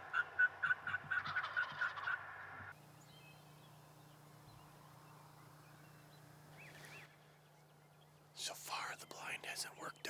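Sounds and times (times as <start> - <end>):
turkey yelps: 0.0 - 2.2.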